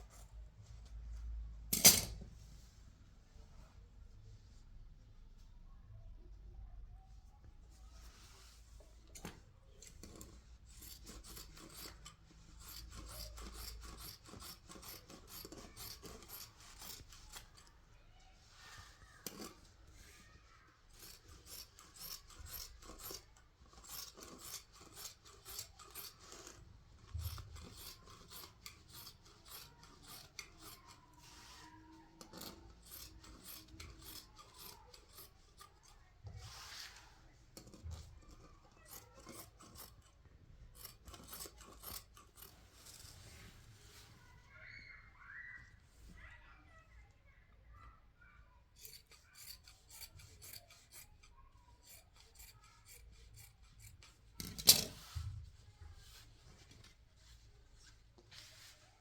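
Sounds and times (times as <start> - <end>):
faint rasping scraping strokes: 18.4 - 44.5, 48.8 - 59.0.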